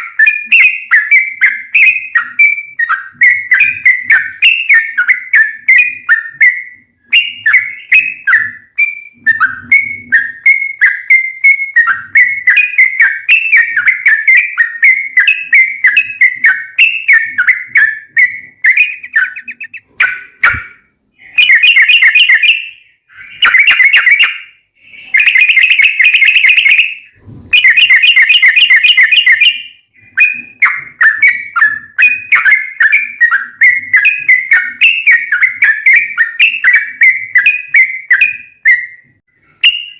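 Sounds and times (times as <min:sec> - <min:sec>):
bird singing whistled notes: 0:00.0 - 0:39.9
harsh buzzy bird chattering: 0:07.1 - 0:26.8.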